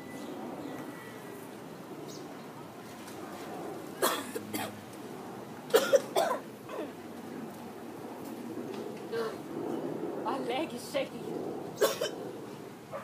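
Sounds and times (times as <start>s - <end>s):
person coughing: 4.0s - 4.7s, 5.7s - 6.9s, 11.8s - 12.1s.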